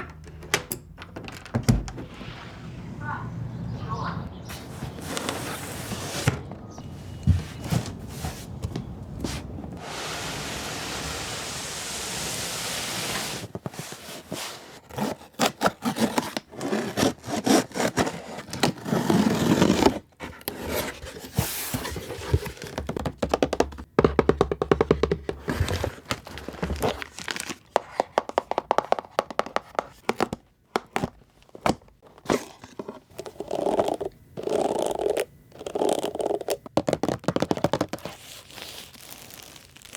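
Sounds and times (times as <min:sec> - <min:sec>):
steady hiss: 0:09.2 - 0:13.5
packaging crinkling and tearing: 0:14.2 - 0:21.0, 0:25.6 - 0:28.0, 0:31.3 - 0:39.9.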